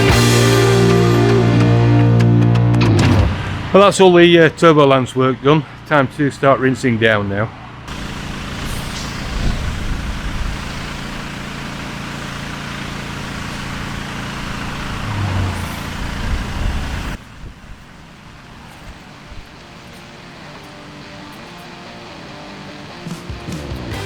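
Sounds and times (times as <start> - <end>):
background music: 0.0 - 3.2, 21.7 - 24.0
pressure washer engine drone: 0.0 - 4.2, 7.7 - 24.0
water jet spray hissing: 7.9 - 24.0.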